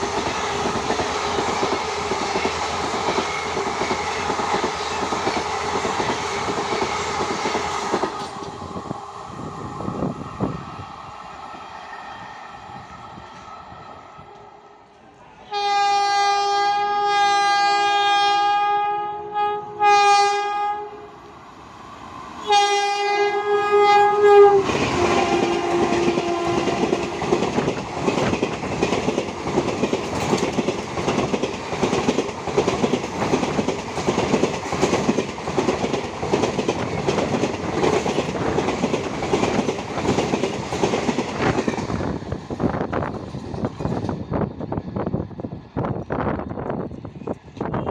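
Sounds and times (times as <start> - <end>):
locomotive horn blasts: 15.5 - 21.1, 22.4 - 26.8
train wheels clattering over rail joints: 24.7 - 44.3.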